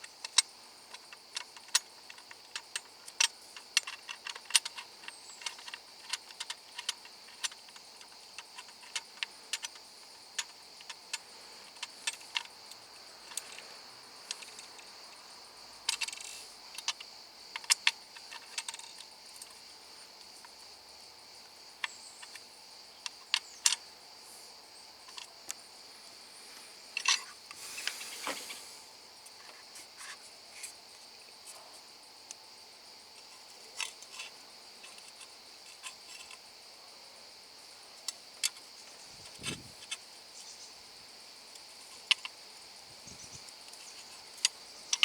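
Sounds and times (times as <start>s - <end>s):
faint high hiss: 25.6s - 31.7s
scraping rustle: 26.2s - 30.8s.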